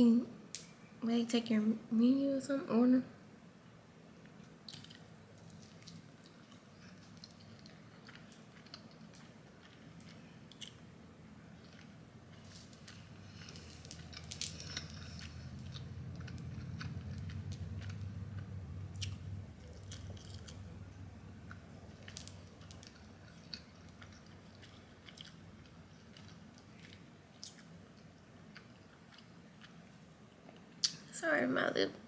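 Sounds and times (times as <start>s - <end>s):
person chewing food: 4.4s - 31.0s
wet mouth clicks and smacks: 4.7s - 10.8s, 30.8s - 31.0s
low hum: 5.2s - 27.0s.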